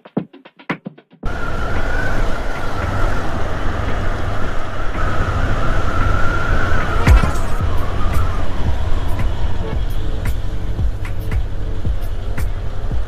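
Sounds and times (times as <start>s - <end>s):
music: 0.0s - 1.3s, 6.0s - 13.0s
wind rumble on microphone: 1.2s - 13.0s
motorcycle being ridden: 1.3s - 13.0s
wavering high whine: 1.3s - 13.0s.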